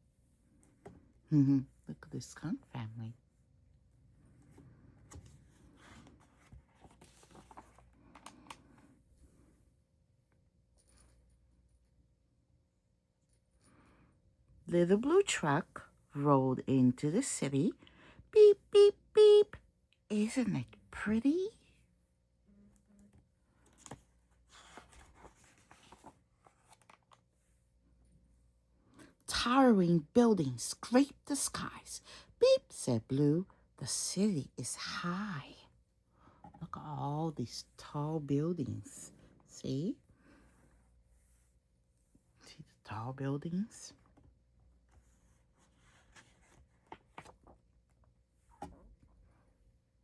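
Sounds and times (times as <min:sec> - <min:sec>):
faint paper rustling: 0:04.2 - 0:09.5, 0:23.0 - 0:27.6, 0:43.9 - 0:49.4.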